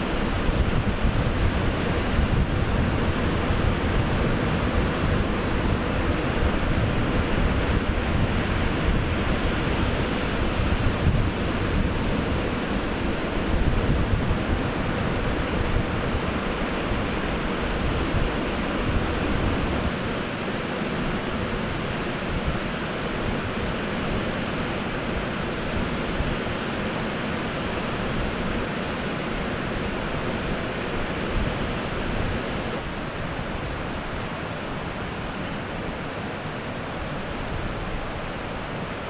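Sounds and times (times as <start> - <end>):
wind buffeting microphone: 0.0 - 20.0, 29.4 - 35.8
surf washing in: 0.0 - 39.0.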